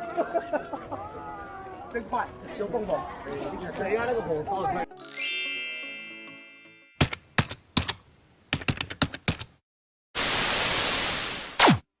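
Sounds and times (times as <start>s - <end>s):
static hiss with downward swoop: 10.2s - 11.7s.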